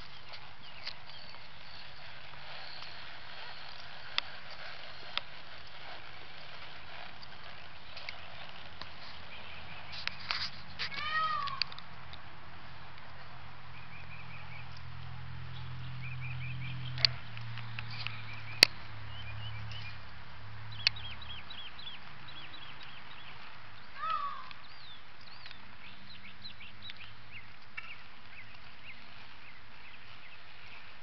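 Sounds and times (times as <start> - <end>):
small birds chirping: 0.0 - 31.0
descending bird call: 6.9 - 11.8, 20.7 - 30.9
sharp clicks: 16.9 - 18.8.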